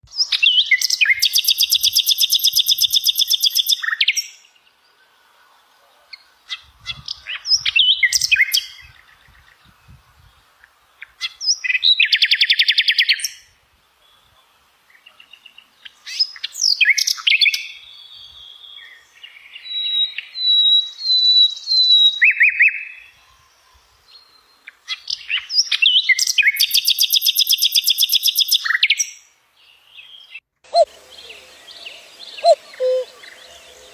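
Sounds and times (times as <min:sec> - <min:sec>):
songbird trilling and chirping: 0:00.2 - 0:04.5, 0:25.0 - 0:33.9.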